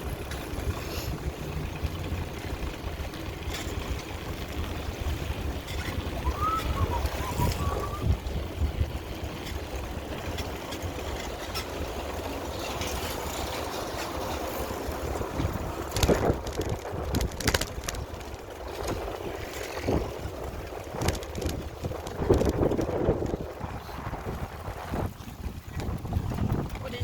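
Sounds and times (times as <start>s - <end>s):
wind rushing over microphone: 5.4s - 10.4s, 14.6s - 27.0s
bicycle knocks and rattles: 9.0s - 23.6s, 25.4s - 27.0s.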